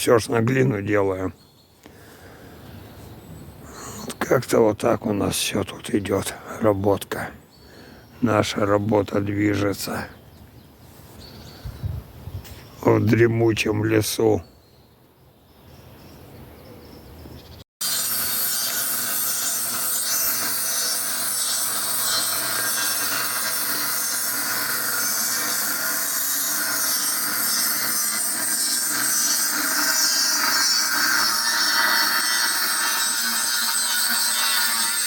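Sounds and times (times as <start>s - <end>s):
power tool cutting: 17.8s - 35.0s.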